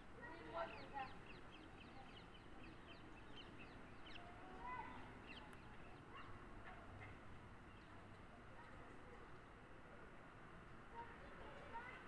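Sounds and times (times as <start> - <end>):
small birds chirping: 0.2 - 9.6.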